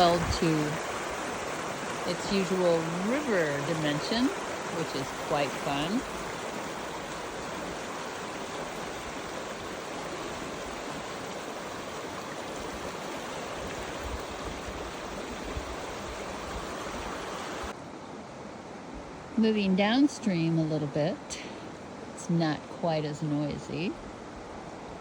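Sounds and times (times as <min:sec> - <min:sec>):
river water rushing: 0:00.0 - 0:19.4.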